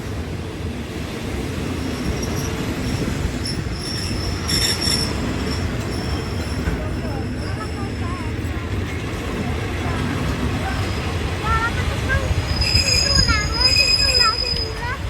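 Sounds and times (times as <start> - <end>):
train rumbling on rails: 0.0 - 15.0
train wheels squealing: 1.8 - 8.4, 12.1 - 15.0.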